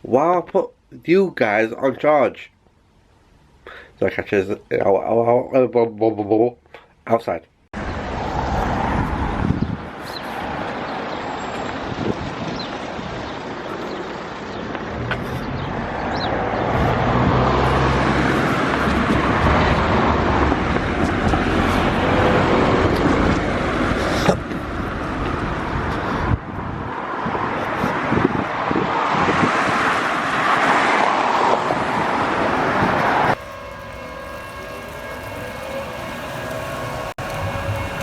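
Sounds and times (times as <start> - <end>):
road vehicles passing: 7.8 - 38.0
engine hum: 32.0 - 38.0.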